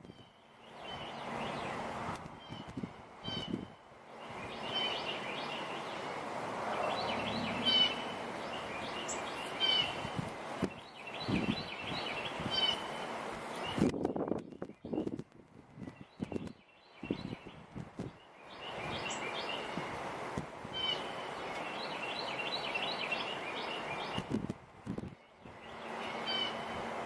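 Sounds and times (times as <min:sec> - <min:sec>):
birds chirping: 0:00.0 - 0:15.2, 0:15.8 - 0:24.4, 0:25.0 - 0:27.0
wind blowing: 0:00.0 - 0:27.0.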